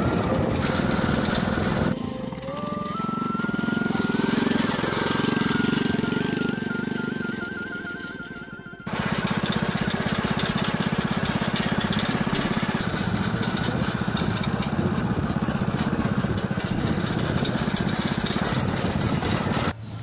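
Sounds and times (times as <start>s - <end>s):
small motorbike engine putter: 8.9s - 19.8s.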